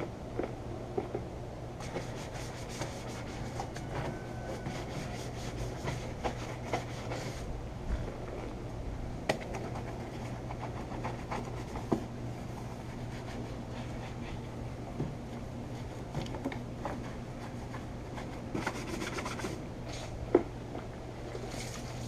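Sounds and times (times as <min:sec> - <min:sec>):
brush scrubbing: 0:01.8 - 0:07.5, 0:09.4 - 0:20.1, 0:21.3 - 0:22.0.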